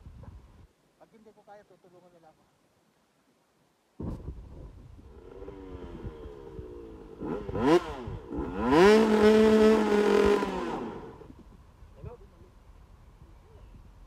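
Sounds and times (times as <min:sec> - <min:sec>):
dirt bike engine revving: 0:05.0 - 0:11.4.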